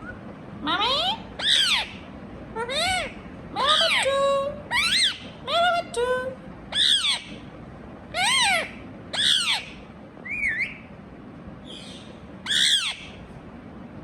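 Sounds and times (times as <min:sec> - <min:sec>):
parrot squawking: 0:00.8 - 0:02.0, 0:02.6 - 0:05.4, 0:06.7 - 0:07.4, 0:08.1 - 0:10.8, 0:11.6 - 0:13.2.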